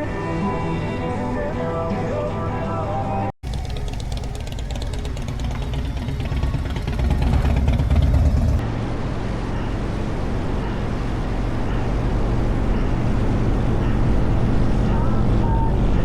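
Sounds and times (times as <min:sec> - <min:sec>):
motorcycle engine rumbling: 0:03.4 - 0:16.0.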